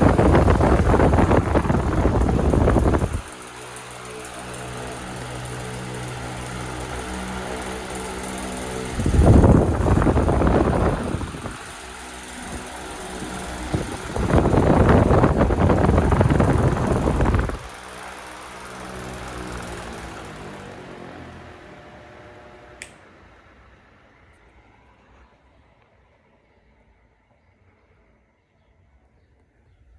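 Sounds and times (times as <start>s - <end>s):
airflow buffeting microphone: 0.0s - 21.6s
fan motor hum: 0.0s - 24.8s.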